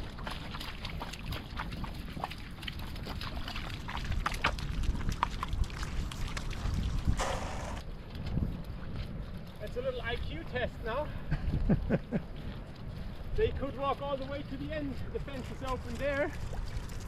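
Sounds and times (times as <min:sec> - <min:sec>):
wet clicks and crackles: 0:00.0 - 0:07.2, 0:12.1 - 0:17.0
wind rumbling on microphone: 0:00.0 - 0:17.0.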